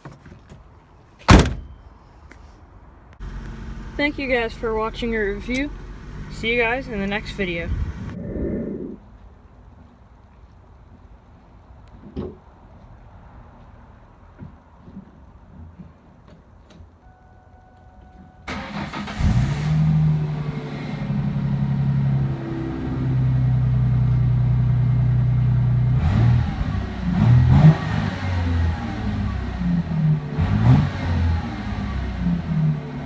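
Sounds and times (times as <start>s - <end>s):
car engine starting and idling: 1.3s - 1.8s, 3.2s - 8.2s, 18.4s - 33.0s
engine revving in short blips: 18.5s - 33.0s.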